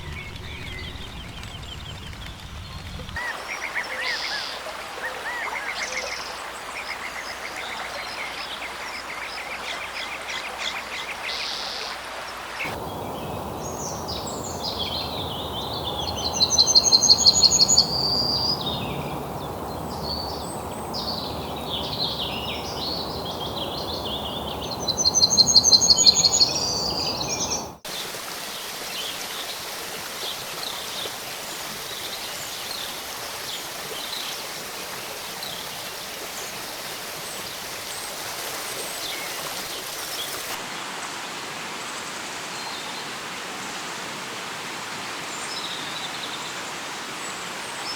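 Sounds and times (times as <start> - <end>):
birds calling: 12.7 - 27.8
rapid trilling bird songs: 12.7 - 27.8
steady rushing hiss: 12.7 - 30.6.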